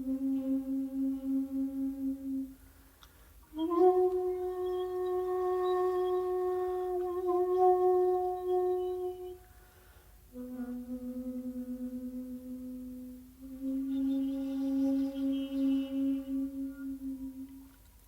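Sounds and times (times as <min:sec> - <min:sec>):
bamboo flute playing: 0:00.0 - 0:17.9
breath: 0:02.6 - 0:03.5, 0:09.4 - 0:10.3.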